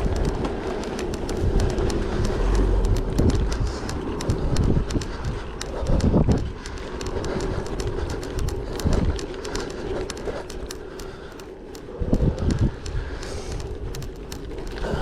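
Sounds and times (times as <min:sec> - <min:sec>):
bike tyres crunching on gravel: 0:00.0 - 0:11.8, 0:13.2 - 0:15.0
bike rattling and clicking: 0:00.0 - 0:15.0
wind rumble on microphone: 0:00.0 - 0:15.0.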